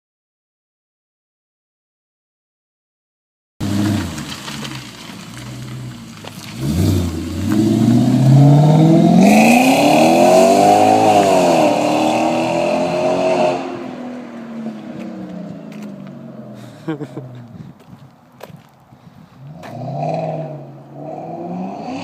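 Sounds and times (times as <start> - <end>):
car engine accelerating hard: 3.6 - 17.5.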